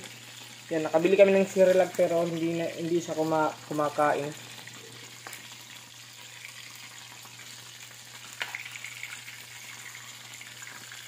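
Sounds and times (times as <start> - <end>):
deep-frying sizzle in oil: 0.0 - 11.0.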